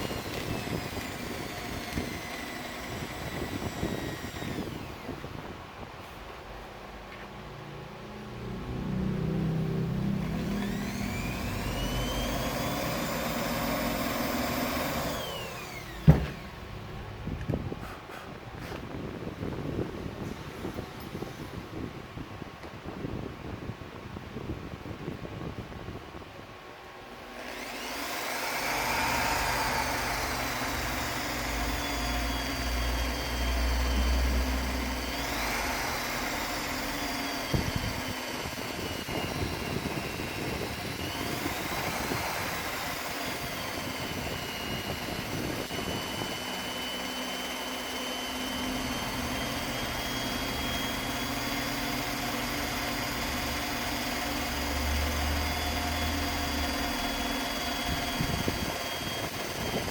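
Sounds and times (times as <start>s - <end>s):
motor whining: 0.0s - 5.5s, 8.2s - 17.0s, 27.2s - 59.9s.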